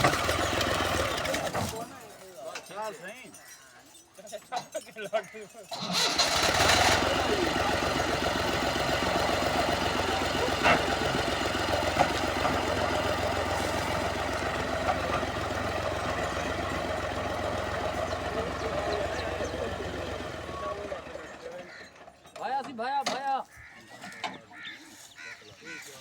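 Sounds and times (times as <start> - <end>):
tractor diesel engine idling: 0.0 - 2.0, 5.7 - 22.8.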